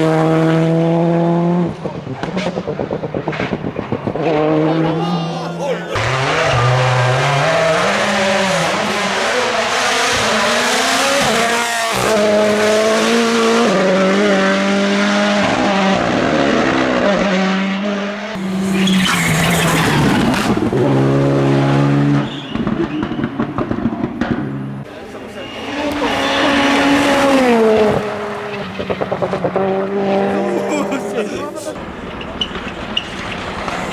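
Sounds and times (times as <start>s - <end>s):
rally car engine revving: 0.0s - 5.0s, 5.8s - 33.9s
tyre squeal: 18.6s - 20.4s, 25.3s - 27.5s.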